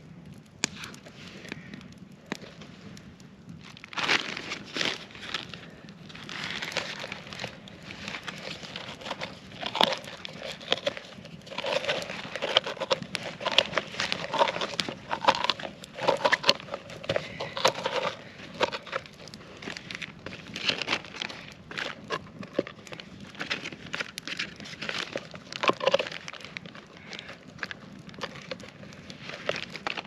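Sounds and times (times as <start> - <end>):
scraping out pumpkin: 6.2 - 26.5.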